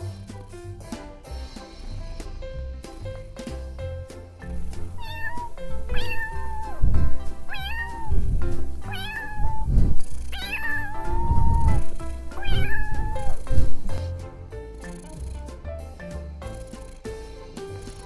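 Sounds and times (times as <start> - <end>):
background music: 0.0 - 18.0
kittens meowing: 4.9 - 13.9.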